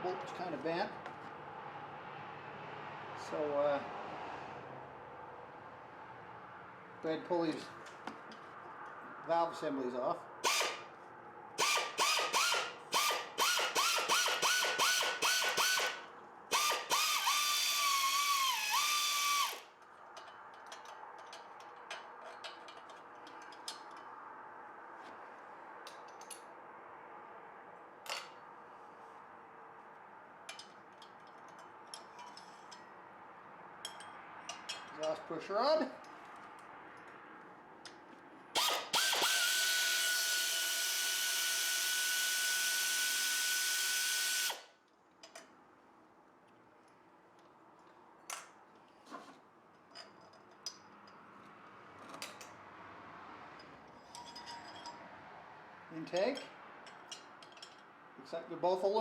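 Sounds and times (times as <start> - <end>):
metal engine parts clicking: 19.8 - 24.2, 56.3 - 57.9
metal parts clinking: 54.0 - 55.0, 56.3 - 57.9.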